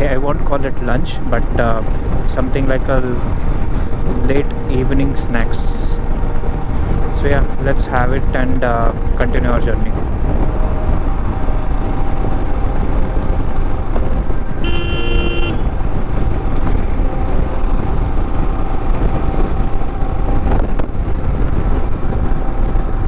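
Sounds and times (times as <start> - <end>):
road traffic rumble: 0.0 - 23.0
vehicle horn: 14.5 - 16.0.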